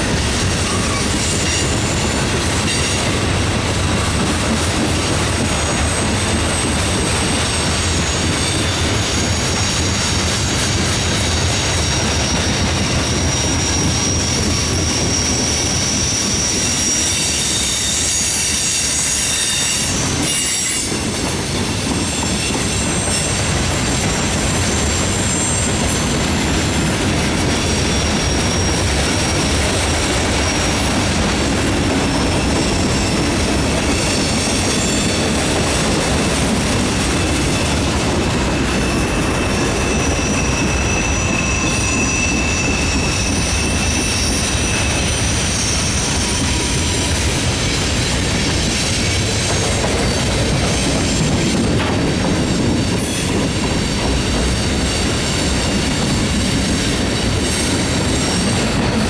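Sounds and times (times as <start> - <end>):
wheels rumbling on rail: 0.0 - 59.0
high-pitched wheel squeal: 11.3 - 21.0, 24.1 - 35.4, 37.0 - 51.7.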